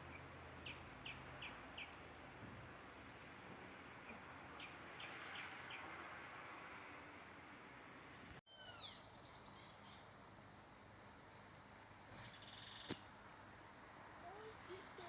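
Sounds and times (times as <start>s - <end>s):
bird calling: 8.5s - 10.0s.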